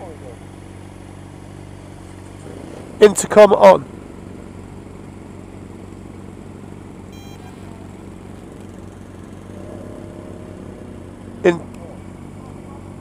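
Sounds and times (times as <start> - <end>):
motorcycle engine idling: 0.0 - 13.0
high-pitched electronic beep: 7.1 - 7.9.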